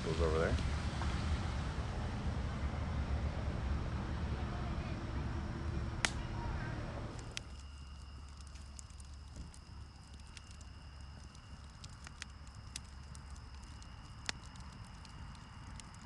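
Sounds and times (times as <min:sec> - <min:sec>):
low rumble: 0:00.0 - 0:16.0
campfire crackling and popping: 0:05.3 - 0:16.0.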